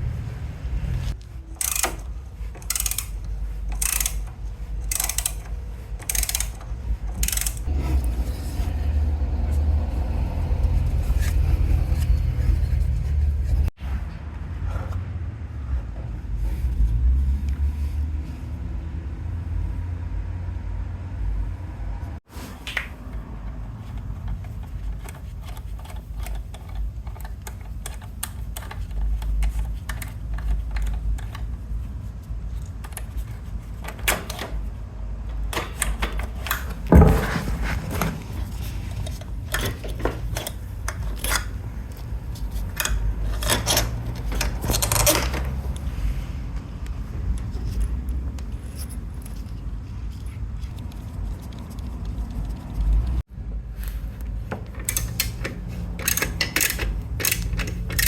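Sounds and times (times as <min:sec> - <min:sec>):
metal tools clinking: 0:01.5 - 0:07.7, 0:54.7 - 0:58.0.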